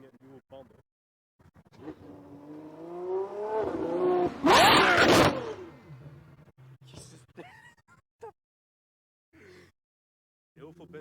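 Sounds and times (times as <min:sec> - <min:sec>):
sports car accelerating past: 0:01.8 - 0:06.0.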